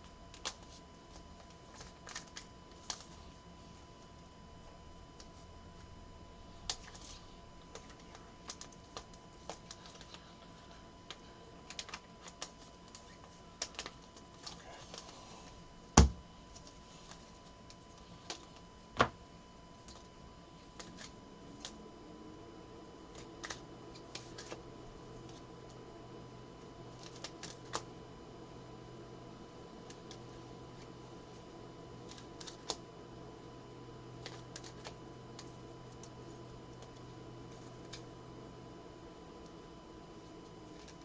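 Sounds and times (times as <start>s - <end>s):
cards handled on a table: 0.3s - 3.4s, 6.6s - 19.2s, 23.1s - 24.6s.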